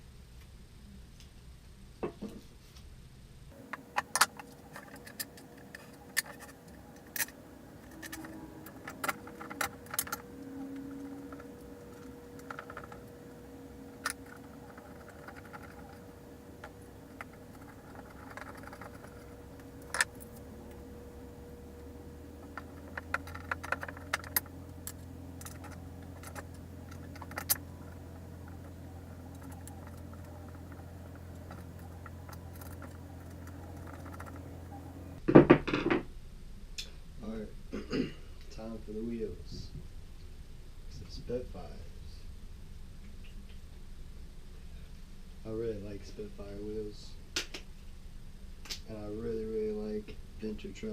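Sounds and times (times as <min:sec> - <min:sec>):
faint steady hum: 0:00.0 - 0:50.9
metal clatter: 0:03.7 - 0:20.9, 0:22.4 - 0:36.0.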